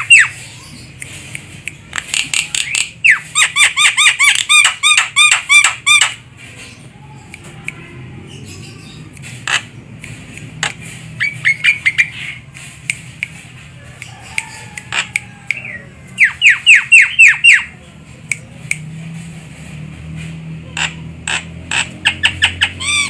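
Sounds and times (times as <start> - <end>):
sharp clicks: 0.9 - 3.0, 9.1 - 15.7
bird calling downward notes: 14.1 - 17.7.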